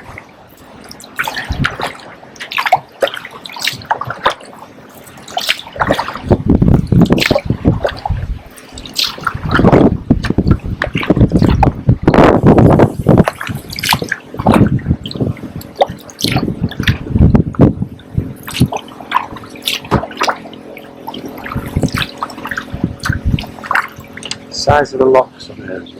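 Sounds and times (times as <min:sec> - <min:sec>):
paddle splashing in water: 0:00.0 - 0:24.7
wind buffeting microphone: 0:00.0 - 0:25.9
water dripping: 0:00.5 - 0:12.2, 0:18.4 - 0:24.4.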